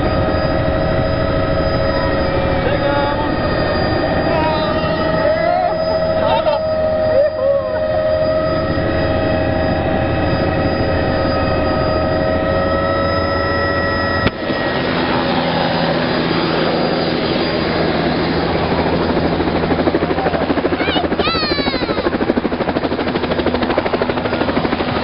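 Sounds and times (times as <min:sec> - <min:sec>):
helicopter engine and rotor: 0:00.0 - 0:25.0
steady whining tones: 0:00.0 - 0:25.0.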